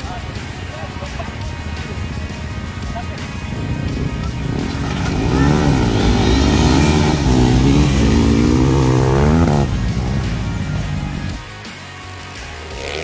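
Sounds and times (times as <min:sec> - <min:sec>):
motorcycle engine revving: 0:02.0 - 0:11.4, 0:12.6 - 0:13.0.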